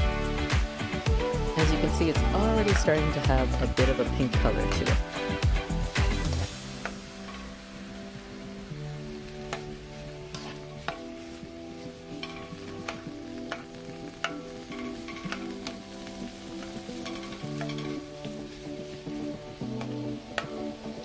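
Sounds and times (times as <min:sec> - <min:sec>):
shrimp sizzling in oil: 0:00.0 - 0:21.0
soft background music: 0:00.0 - 0:21.0
spatula scraping a pan: 0:09.4 - 0:20.5.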